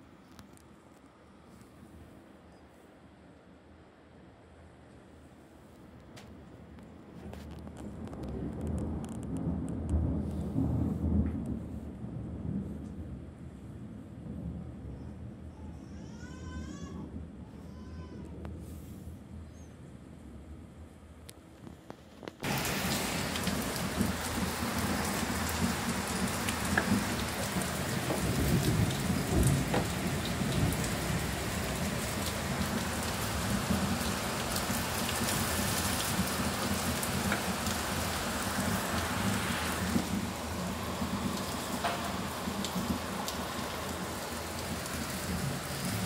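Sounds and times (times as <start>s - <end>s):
heavy rain pouring: 7.2s - 12.9s, 22.0s - 46.0s.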